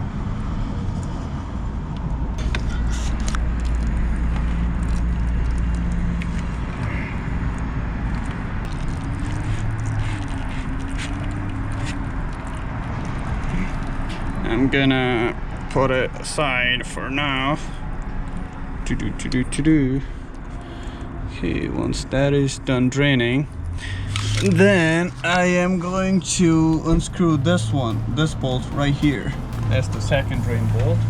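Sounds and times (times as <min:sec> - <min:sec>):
low background rumble: 0:24.9 - 0:31.0
sharp ticks: 0:27.1 - 0:31.0.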